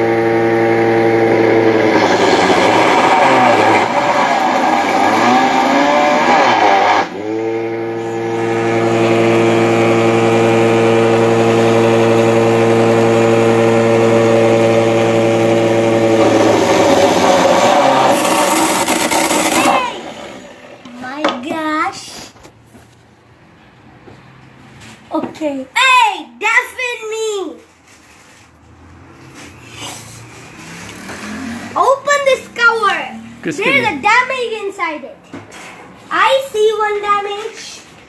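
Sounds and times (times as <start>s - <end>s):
electric motor humming: 0.0s - 20.9s.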